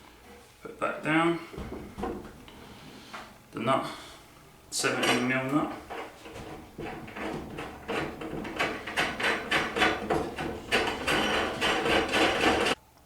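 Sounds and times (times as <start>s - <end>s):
nut rattling on threaded rod: 5.0s - 12.8s.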